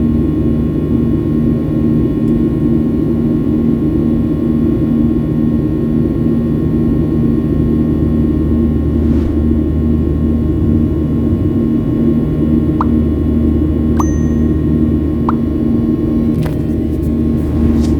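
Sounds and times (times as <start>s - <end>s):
jet engine drone in cabin: 5.2s - 17.9s.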